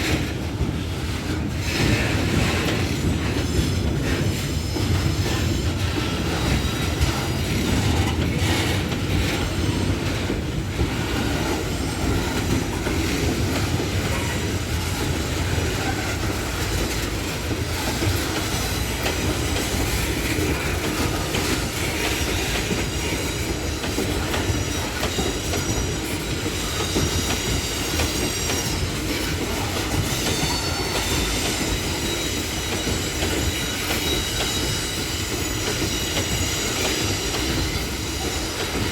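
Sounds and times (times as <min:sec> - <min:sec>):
freight train wheels clattering: 0:00.0 - 0:38.9
high wheel squeal: 0:17.7 - 0:38.9.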